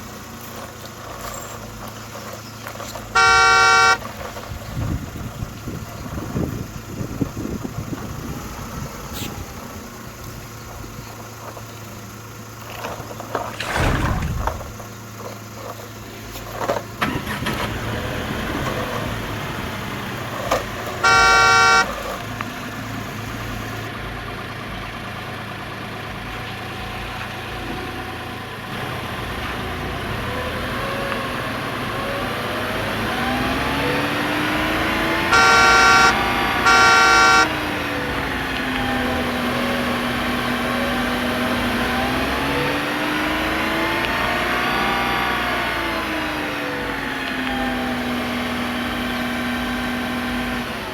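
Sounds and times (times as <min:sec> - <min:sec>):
toy car horn: 0:03.2 - 0:04.1, 0:20.9 - 0:22.3, 0:35.2 - 0:37.7.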